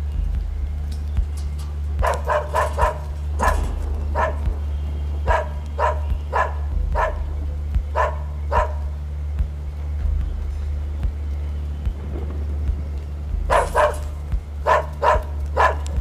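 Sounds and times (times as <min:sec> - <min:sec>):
low hum: 0:00.0 - 0:16.0
dog barking: 0:02.0 - 0:04.6, 0:05.2 - 0:08.9, 0:13.5 - 0:16.0.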